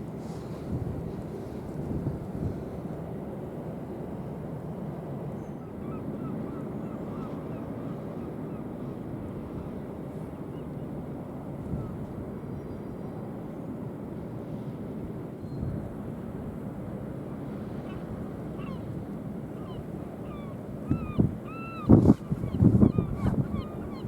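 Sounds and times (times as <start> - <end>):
wind rumbling on microphone: 0.0 - 3.2, 11.6 - 13.0, 20.0 - 24.0.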